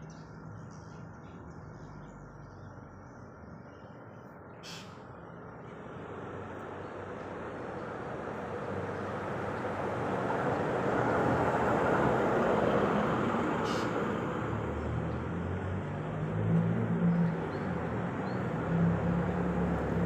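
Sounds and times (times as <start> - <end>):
low engine hum: 0.0 - 20.0
vehicle passing: 5.7 - 20.0.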